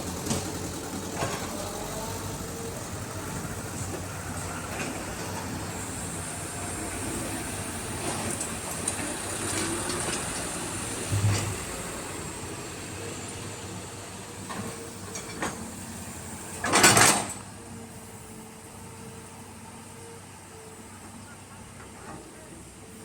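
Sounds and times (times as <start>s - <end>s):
excavator diesel engine running: 0.0s - 23.0s
knocks and clunks: 11.1s - 12.2s
short rush of noise: 11.1s - 12.4s.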